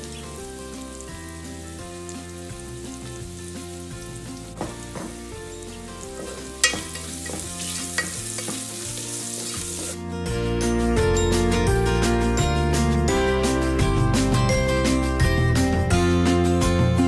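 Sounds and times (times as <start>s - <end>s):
onions sizzling in a pot: 0.0s - 10.0s
soft background music: 0.0s - 17.0s
wooden spoon scraping a pot: 6.0s - 10.0s.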